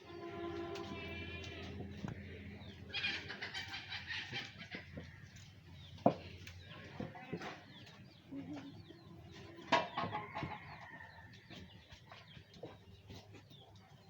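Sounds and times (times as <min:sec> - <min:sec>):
high-pitched clucking: 0:02.9 - 0:05.2.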